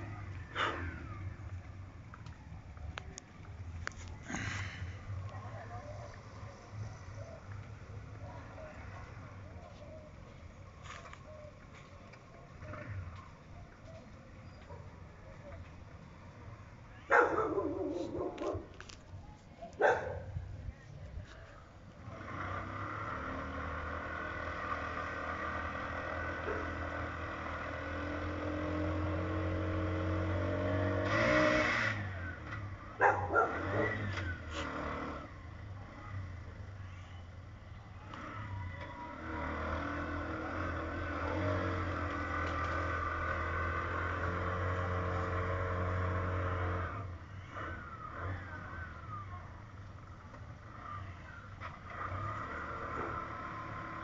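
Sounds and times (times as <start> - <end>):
motorcycle engine revving: 0.0 - 9.8, 12.1 - 14.8, 21.8 - 54.0.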